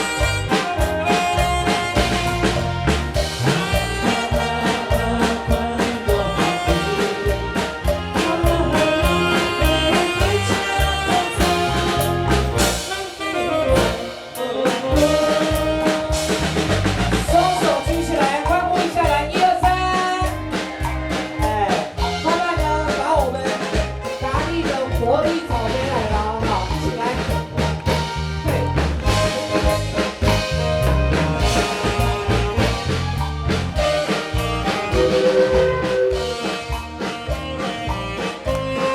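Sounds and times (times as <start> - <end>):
band accompaniment: 0.0 - 38.9
drum kit beat: 0.0 - 38.9
saxophone melody: 0.0 - 38.9.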